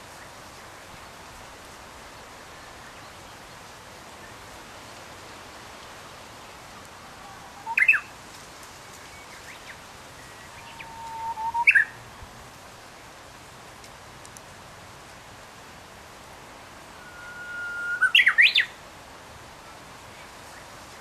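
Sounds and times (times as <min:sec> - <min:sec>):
background hiss: 0:00.0 - 0:21.0
songbird singing: 0:02.4 - 0:04.6, 0:06.2 - 0:12.3, 0:16.7 - 0:18.8.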